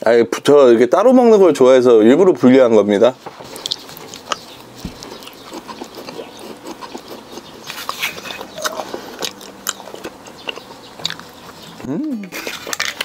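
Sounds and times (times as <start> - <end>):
person chewing: 3.4 - 13.0
wet mouth noises: 3.4 - 13.0.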